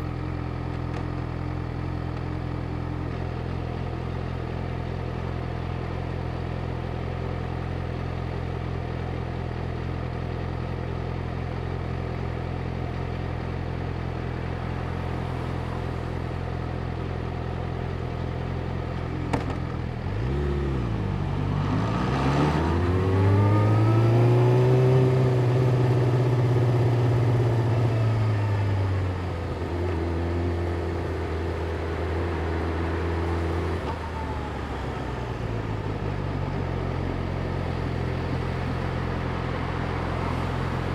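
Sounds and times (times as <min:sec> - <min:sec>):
motorcycle engine: 0:00.0 - 0:40.9.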